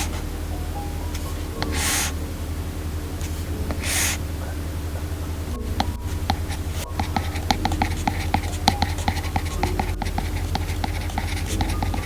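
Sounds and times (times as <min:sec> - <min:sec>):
steady low hum: 0:00.0 - 0:12.0
stylus tapping on glass screen: 0:05.8 - 0:12.0.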